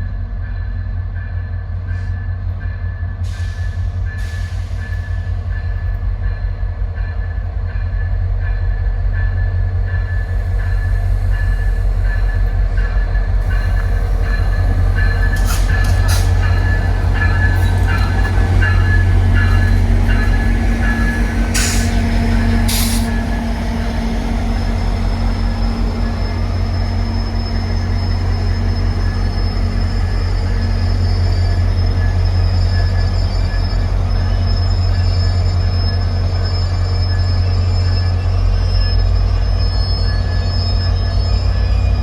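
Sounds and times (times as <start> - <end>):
train rumbling: 0.0 - 42.0
train wheel squeal: 0.4 - 42.0
air brake hisses: 15.1 - 17.6, 21.1 - 23.3.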